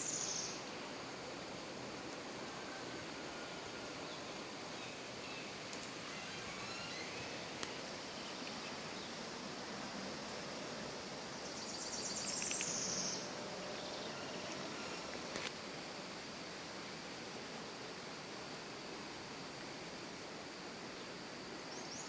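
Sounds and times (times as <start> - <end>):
steady outdoor hiss: 0.0 - 22.0
faint clicks: 5.7 - 6.0, 12.3 - 12.9.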